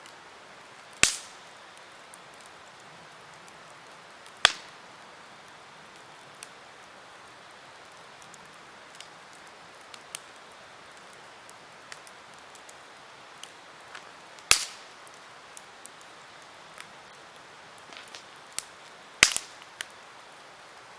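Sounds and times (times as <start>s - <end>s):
campfire crackling: 0.0s - 20.9s
fire hiss: 0.0s - 20.9s
loud fire pop: 1.0s - 1.4s, 4.4s - 4.7s, 14.0s - 14.9s, 17.9s - 18.3s, 19.2s - 19.6s.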